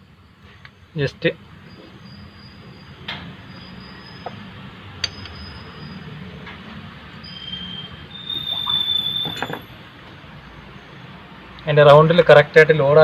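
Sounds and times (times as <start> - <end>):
high metallic squeal: 1.7 - 6.4, 7.2 - 9.8
metal tools clinking: 9.2 - 9.7.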